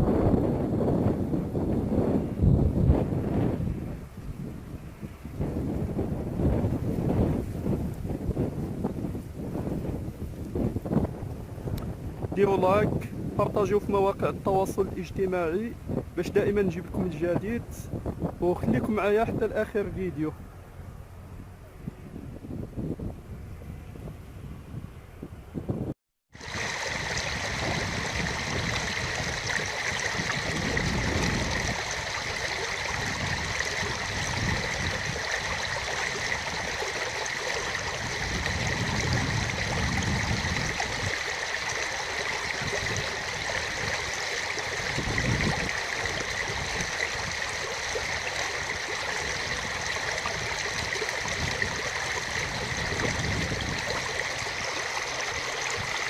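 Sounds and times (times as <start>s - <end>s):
wind buffeting microphone: 0.0s - 56.0s
stream water rushing: 26.4s - 56.0s.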